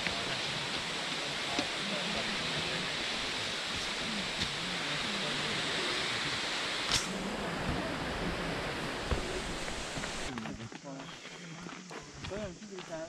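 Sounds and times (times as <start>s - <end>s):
footsteps on dirt path: 0.0s - 4.7s, 8.8s - 13.0s
stream water flowing: 0.0s - 10.3s
sharp crack: 6.9s - 7.2s.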